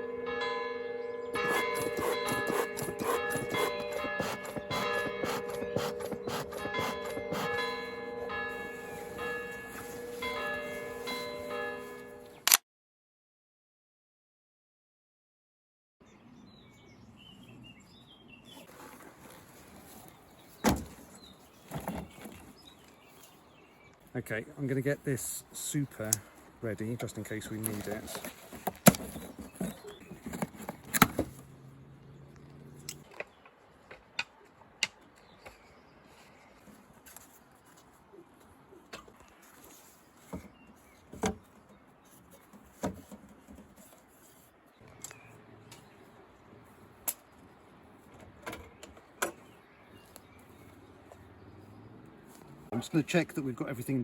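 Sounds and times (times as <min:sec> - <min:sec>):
church bells ringing: 0:00.0 - 0:12.4
wooden beehive frames knocking: 0:01.4 - 0:07.9.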